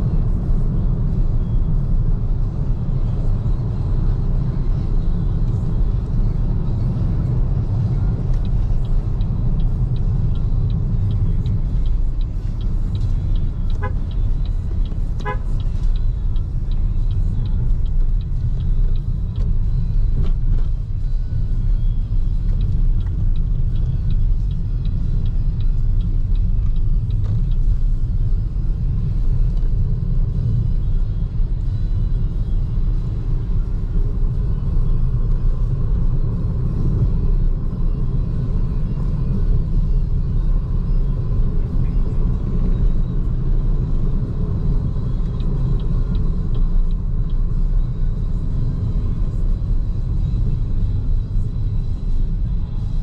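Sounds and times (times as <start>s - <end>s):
road and tyre rumble: 0.0s - 53.0s
car horn toots: 13.7s - 14.2s, 15.2s - 15.8s.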